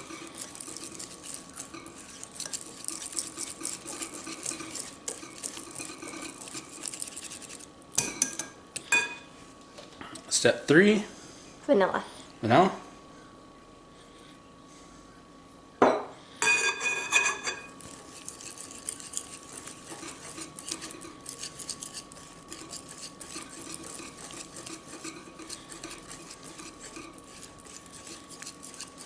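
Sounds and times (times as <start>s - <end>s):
spoon scraping while stirring: 0.0s - 9.2s, 16.5s - 29.0s
utensil clinking against bowl: 0.0s - 9.2s, 16.4s - 29.0s.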